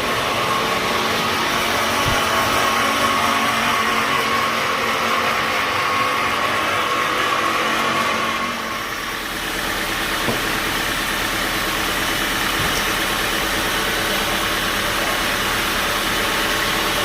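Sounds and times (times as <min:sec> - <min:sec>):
sawmill machinery humming: 0:00.0 - 0:17.0.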